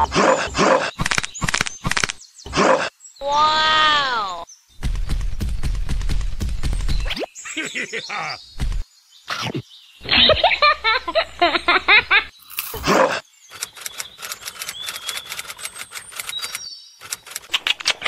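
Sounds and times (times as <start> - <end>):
quick clicks: 1.0 - 2.2, 13.5 - 18.0.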